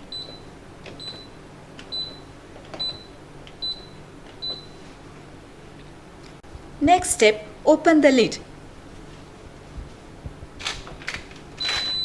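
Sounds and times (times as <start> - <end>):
washing machine panel beeps: 0.1 - 4.8, 11.6 - 12.0.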